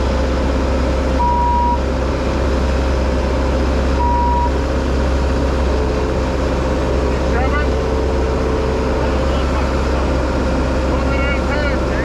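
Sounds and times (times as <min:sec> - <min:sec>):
diesel engine running: 0:00.0 - 0:12.0
backup alarm beeping: 0:01.2 - 0:01.8, 0:04.0 - 0:04.6.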